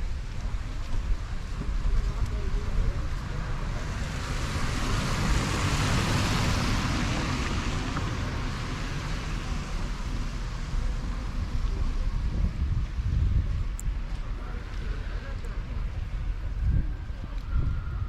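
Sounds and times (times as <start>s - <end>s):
car passing by: 3.2s - 12.6s.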